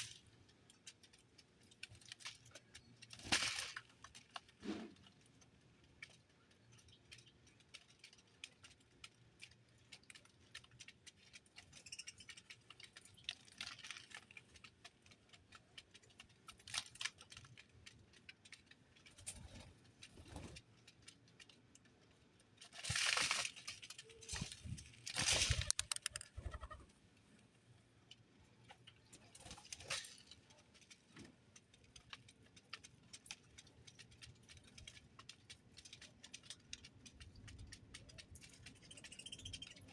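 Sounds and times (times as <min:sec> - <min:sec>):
birds pecking: 0:00.2 - 0:39.9
rustling bursts: 0:24.2 - 0:26.8.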